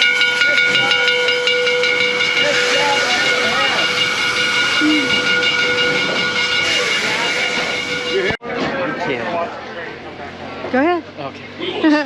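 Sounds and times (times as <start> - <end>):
steam locomotive hissing: 0.0 - 8.4
steam whistle tones: 0.0 - 8.4.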